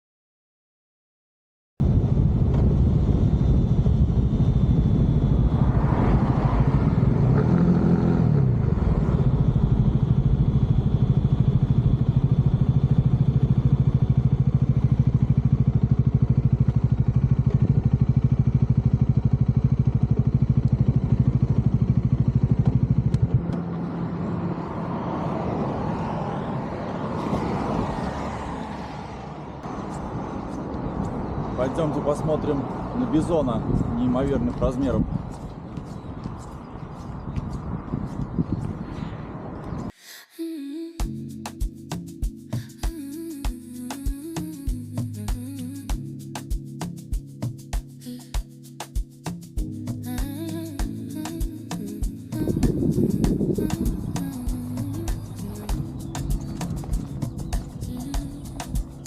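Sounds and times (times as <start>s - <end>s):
motorcycle engine running: 1.8s - 25.0s, 32.5s - 38.8s, 49.6s - 59.0s
outdoor noise: 1.8s - 40.4s, 48.8s - 59.0s.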